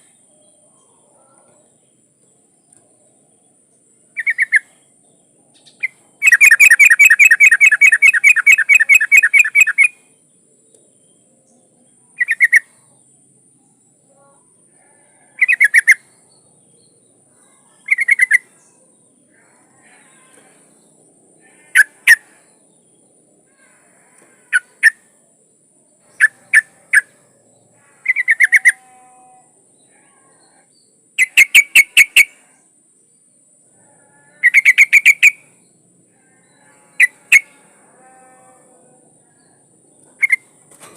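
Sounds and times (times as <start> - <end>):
bird chattering call: 4.2 - 4.7, 5.6 - 10.0, 12.2 - 12.7, 15.4 - 16.0, 17.8 - 18.5, 21.7 - 22.2, 28.0 - 28.8, 31.2 - 32.3, 34.4 - 35.4, 40.2 - 40.5.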